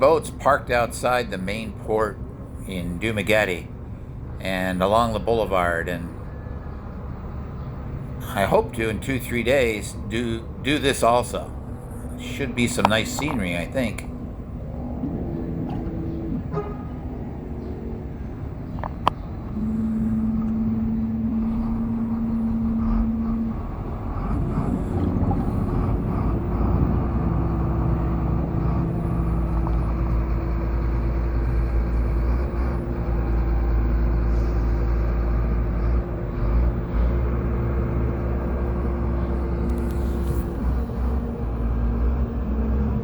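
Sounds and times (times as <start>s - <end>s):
engine droning: 0.0s - 43.0s.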